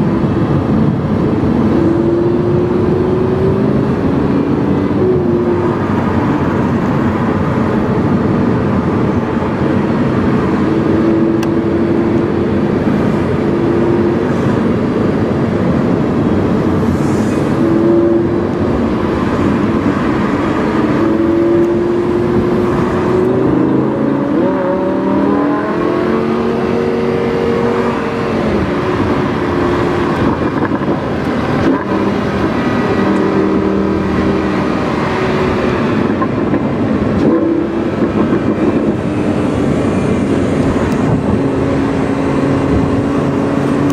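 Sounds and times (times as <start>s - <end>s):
sports car engine while driving: 0.0s - 43.9s.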